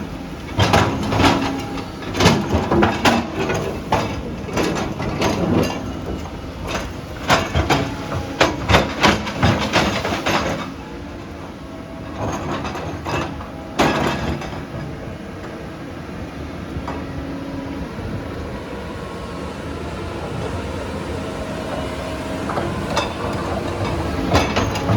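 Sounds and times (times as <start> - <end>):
excavator diesel engine running: 0.0 - 24.9
metal clanks and knocks: 0.5 - 10.8, 12.0 - 15.0, 22.5 - 24.9.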